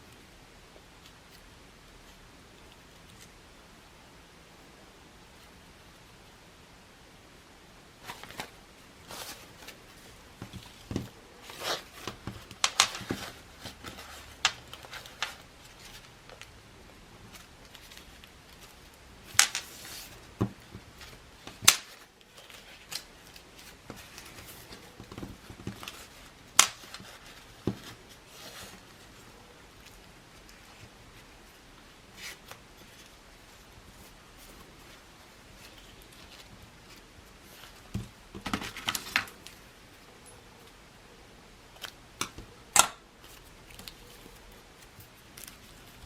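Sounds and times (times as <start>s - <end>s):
craft materials rustling: 8.0s - 40.8s.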